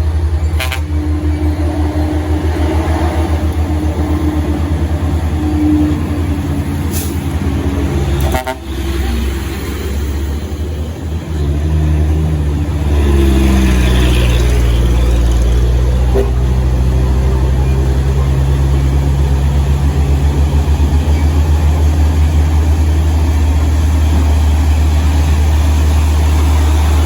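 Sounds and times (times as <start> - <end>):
truck diesel engine labouring: 0.0 - 27.0
truck horn toot: 0.4 - 2.8, 8.0 - 9.0.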